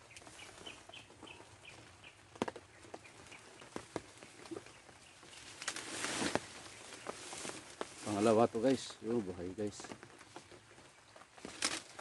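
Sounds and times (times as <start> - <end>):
bird chirping: 0.0 - 8.2
rustling in undergrowth: 0.0 - 12.0
twigs and leaves crackling: 0.0 - 12.0.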